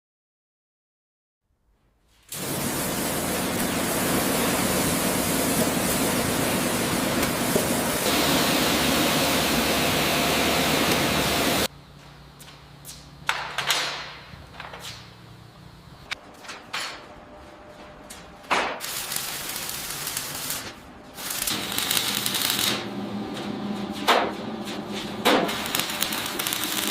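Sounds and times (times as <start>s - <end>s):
loud steady hissing: 2.3s - 11.8s, 25.5s - 26.9s.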